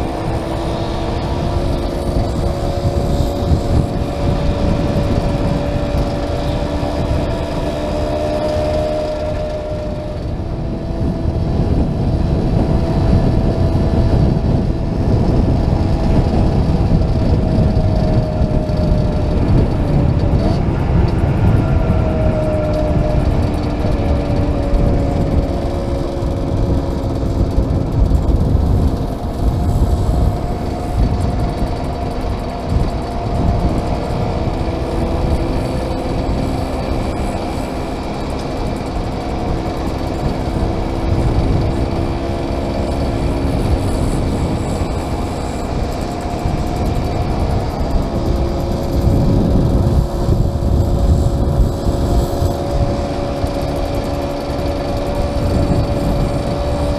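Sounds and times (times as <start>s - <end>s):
motorcycle engines running: 0.0s - 56.9s
wind buffeting microphone: 0.0s - 56.9s.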